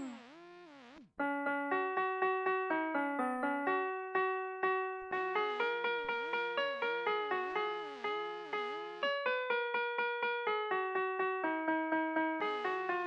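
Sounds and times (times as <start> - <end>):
electronic toy melody: 0.0 - 1.4, 4.7 - 9.8, 12.4 - 13.0.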